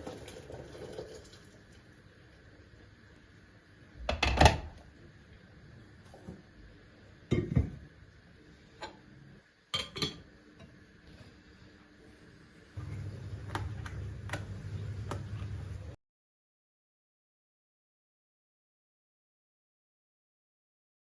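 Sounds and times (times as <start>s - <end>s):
dishes knocking and clinking: 4.0s - 4.8s, 7.3s - 7.8s, 9.8s - 10.7s.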